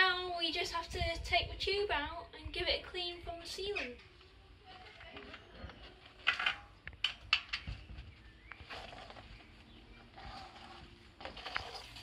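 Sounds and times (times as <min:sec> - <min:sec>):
rubber tyre rubbing and scraping: 0:08.5 - 0:12.0.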